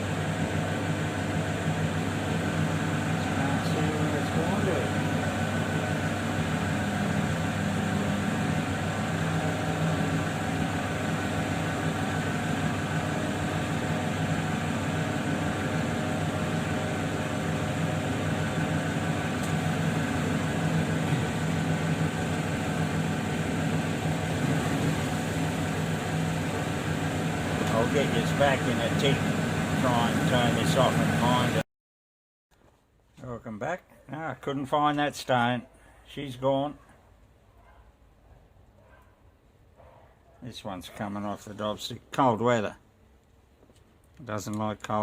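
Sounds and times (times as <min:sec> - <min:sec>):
grinding wheel motor humming: 0:00.0 - 0:31.6.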